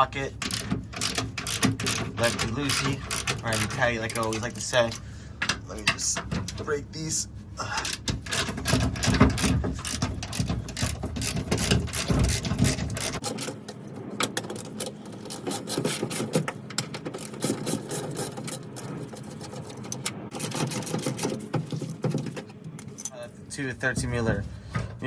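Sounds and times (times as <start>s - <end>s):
socket ratchet clicking rapidly: 0.4s - 4.6s, 7.8s - 13.3s
heavy knocking and handling: 0.4s - 6.8s, 7.8s - 23.2s, 23.8s - 25.0s.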